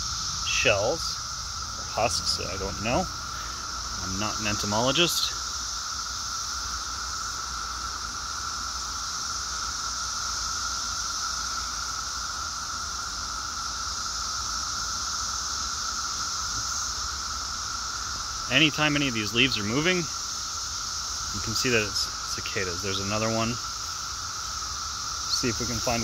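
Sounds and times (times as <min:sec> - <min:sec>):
cicadas droning chorus: 0:00.0 - 0:26.0.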